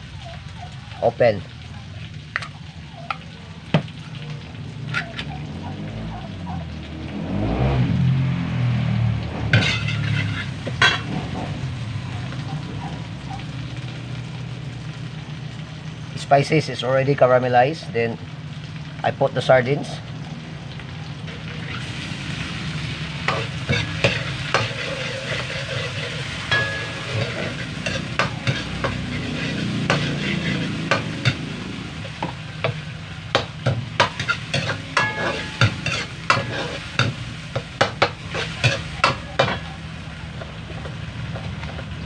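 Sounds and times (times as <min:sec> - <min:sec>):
food sizzling in a wok: 0:00.0 - 0:42.0
metal ladle clinking against pan: 0:23.3 - 0:29.1, 0:33.4 - 0:37.2.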